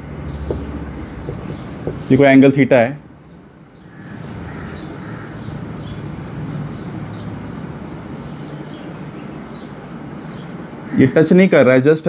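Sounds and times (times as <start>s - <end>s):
small birds chirping: 0.2s - 10.9s
scratchy rubbing on whiteboard: 0.5s - 2.2s, 7.1s - 10.0s
steady low hum: 3.0s - 10.9s.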